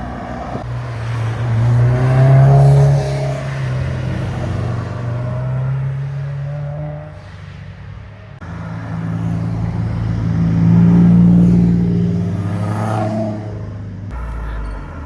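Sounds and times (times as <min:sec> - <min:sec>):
car accelerating past: 0:00.0 - 0:07.3
sports cars passing: 0:00.0 - 0:15.0.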